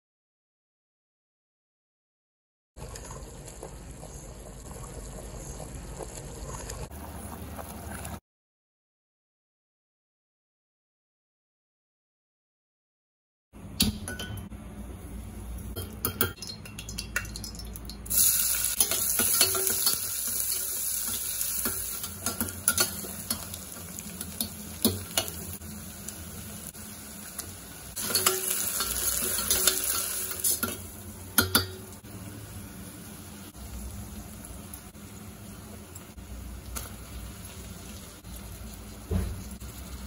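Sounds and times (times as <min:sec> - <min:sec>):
onions sizzling in oil: 0:18.1 - 0:40.0.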